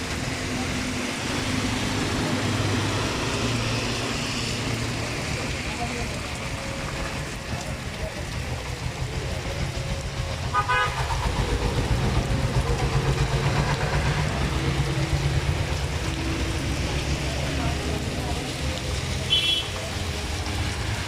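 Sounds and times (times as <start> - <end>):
road traffic rumble: 0.0 - 21.0
vehicle horn toot: 10.6 - 11.0, 19.3 - 19.7.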